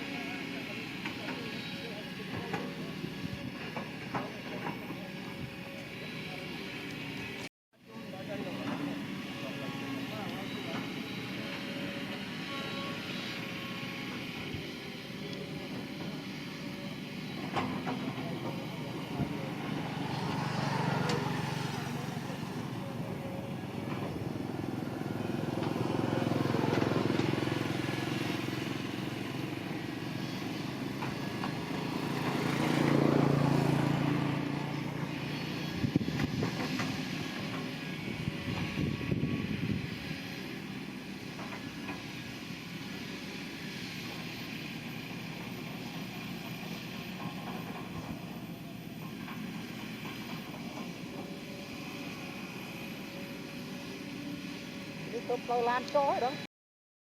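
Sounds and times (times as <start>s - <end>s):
diesel engine of heavy machinery: 0.0s - 56.5s.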